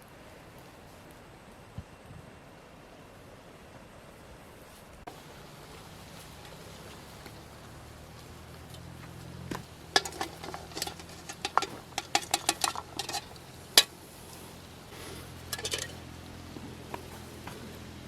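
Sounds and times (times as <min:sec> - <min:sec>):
dishes and utensils clinking: 0:09.9 - 0:13.9, 0:15.5 - 0:16.0.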